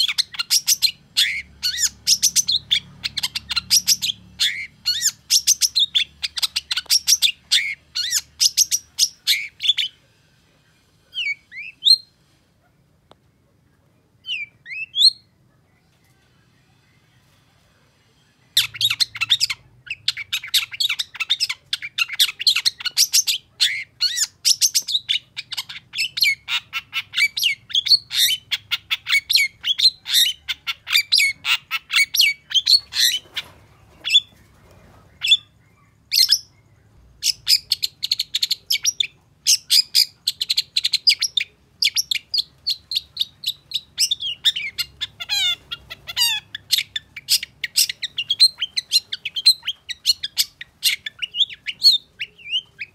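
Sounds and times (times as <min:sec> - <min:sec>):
shrike chattering song: 0:37.2 - 0:52.9.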